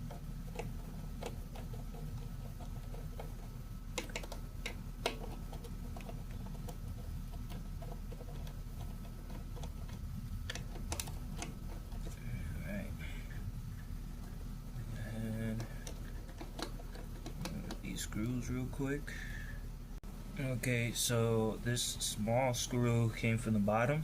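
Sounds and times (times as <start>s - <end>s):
steady low hum: 0.0s - 24.0s
screwdriver clicks and taps: 3.9s - 6.2s, 10.5s - 11.6s.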